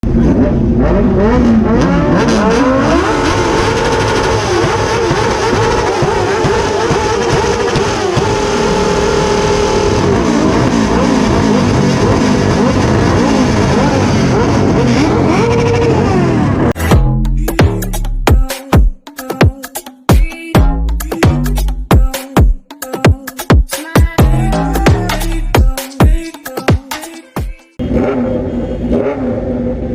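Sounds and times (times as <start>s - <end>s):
motorcycles revving engines: 0.0s - 16.8s, 27.8s - 29.9s.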